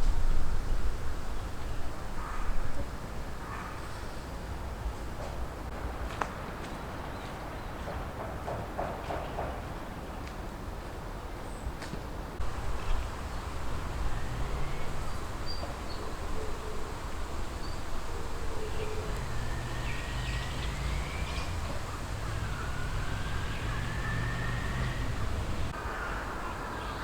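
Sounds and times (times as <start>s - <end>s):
distant traffic rumble: 0.0s - 27.0s
thin rising whistles: 19.0s - 25.8s.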